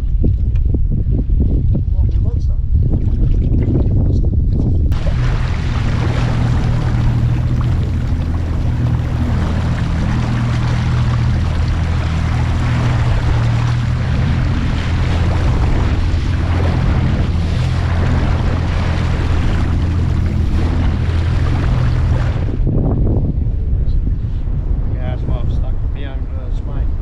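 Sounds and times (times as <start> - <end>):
wind noise: 0.0 - 27.0
water noise: 2.6 - 27.0
outboard motor running: 4.9 - 23.5.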